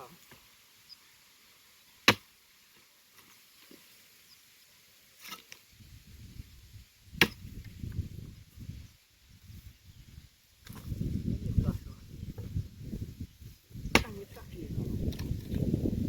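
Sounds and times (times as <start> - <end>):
axe chopping firewood: 2.0 - 2.3, 7.2 - 7.6, 13.9 - 14.2
branches rustling and knocking: 2.0 - 4.1, 12.3 - 16.0.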